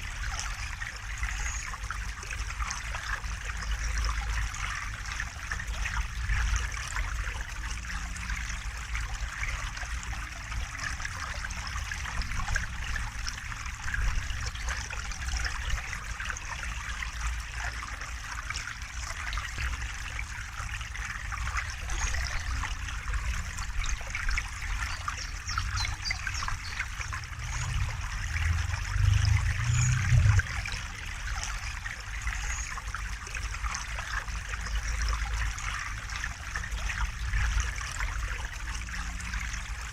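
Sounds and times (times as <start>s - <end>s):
river water flowing and trickling: 0.0s - 39.9s
low rumble: 26.5s - 31.7s.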